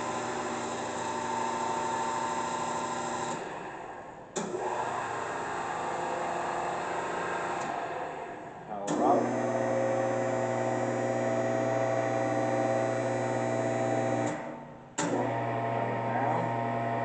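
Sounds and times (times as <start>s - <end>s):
electric motor humming: 8.9s - 17.0s.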